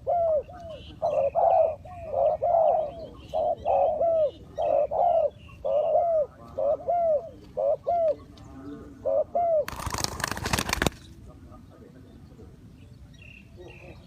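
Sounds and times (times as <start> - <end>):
doves cooing: 0.0 - 11.2.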